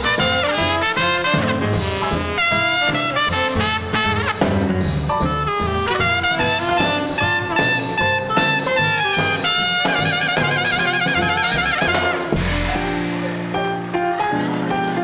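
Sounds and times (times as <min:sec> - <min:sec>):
trumpet lead: 0:00.0 - 0:13.9
swing band playing: 0:00.0 - 0:15.0
full band low hit: 0:11.0 - 0:14.2.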